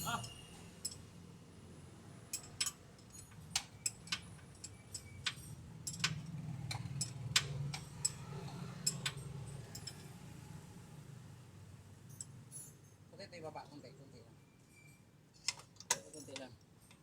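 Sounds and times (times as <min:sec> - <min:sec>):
hand tools clinking on metal: 0:00.0 - 0:01.0, 0:15.9 - 0:17.0.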